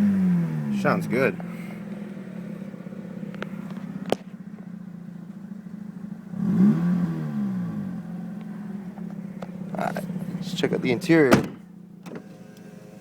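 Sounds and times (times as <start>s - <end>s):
engine revving: 6.3s - 8.1s.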